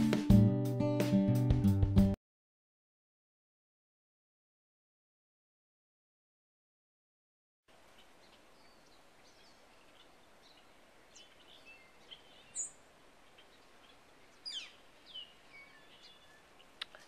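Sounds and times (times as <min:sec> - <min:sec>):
faint outdoor hiss: 0:07.7 - 0:17.0
songbirds chirping and calling: 0:07.8 - 0:17.0.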